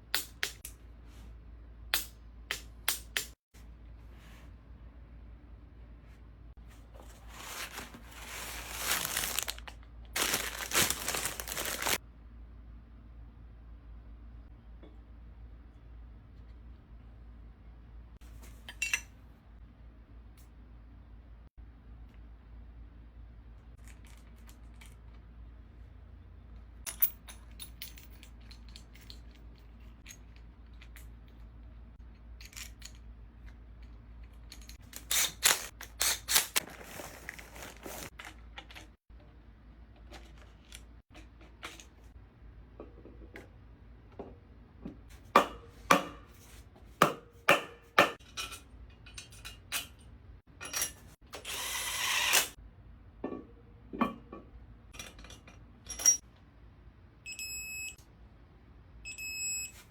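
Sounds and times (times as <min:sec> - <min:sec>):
metal tools clinking on metal: 0:48.2 - 0:51.2, 0:54.9 - 0:56.2.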